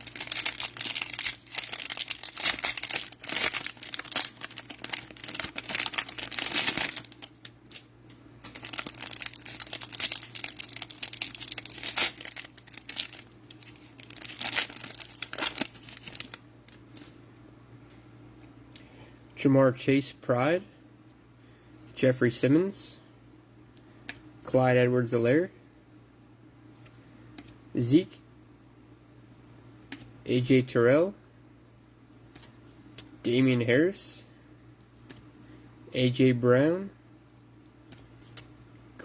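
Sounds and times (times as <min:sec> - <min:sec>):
cellophane wrapper crinkling and tearing: 0:00.0 - 0:17.1.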